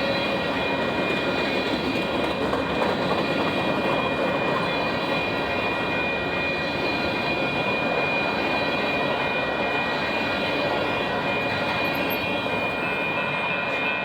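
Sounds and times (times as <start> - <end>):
train wheels rumbling on rail: 0.0 - 14.0
high-pitched ringing: 3.2 - 14.0.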